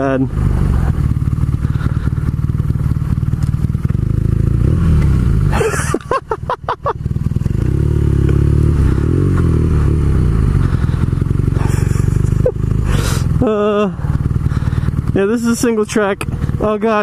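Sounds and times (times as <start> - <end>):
motorcycle engine revving: 0.0 - 17.0
clatter: 0.5 - 6.2.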